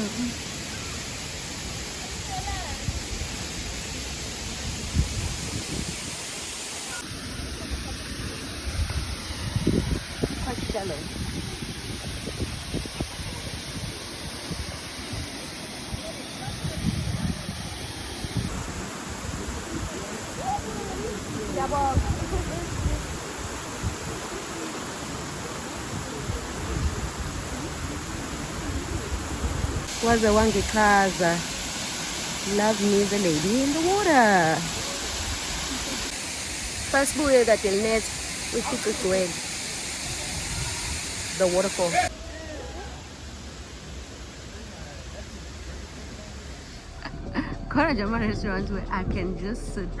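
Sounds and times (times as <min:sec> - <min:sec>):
waterfall rushing: 0:00.0 - 0:47.4
low rumbling bumps: 0:46.6 - 0:50.0.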